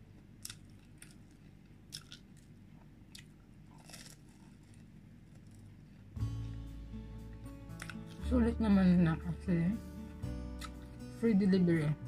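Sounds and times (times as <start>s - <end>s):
person chewing crunchy food: 0.2s - 6.7s, 7.6s - 8.2s, 10.5s - 11.0s
crisp crunches: 3.2s - 5.7s.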